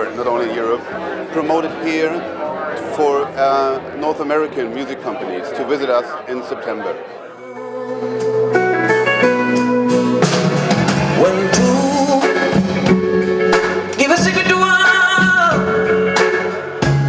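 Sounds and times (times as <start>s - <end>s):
person singing wavering notes: 7.2s - 10.3s
bluesy rock band music: 7.6s - 17.0s.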